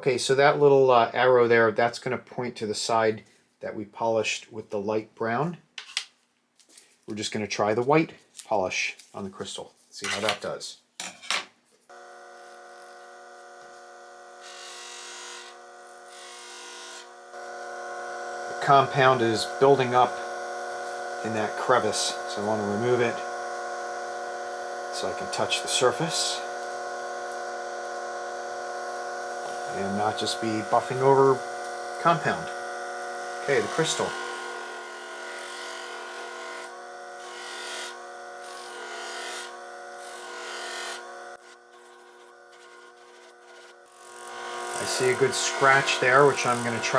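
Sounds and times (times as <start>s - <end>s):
electric motor whining: 11.9s - 46.9s
workpiece rubbing on buffing wheel: 12.2s - 46.9s
rubbing hiss on buffing wheel: 44.7s - 46.9s.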